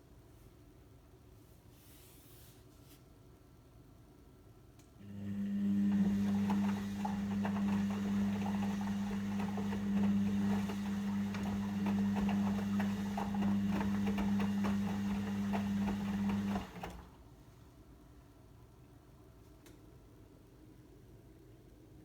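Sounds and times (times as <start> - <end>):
washing machine humming: 5.0 - 17.6.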